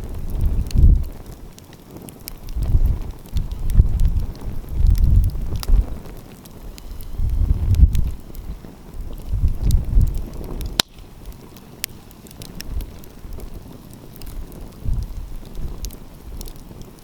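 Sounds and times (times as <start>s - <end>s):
wind rumbling on microphone: 0.0s - 17.0s
wood fire crackling: 0.0s - 17.0s.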